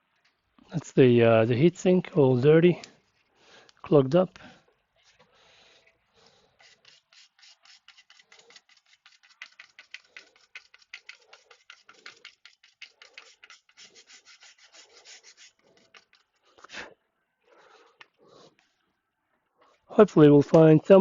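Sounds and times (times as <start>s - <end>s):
brush scrubbing heatsink: 6.3s - 16.4s.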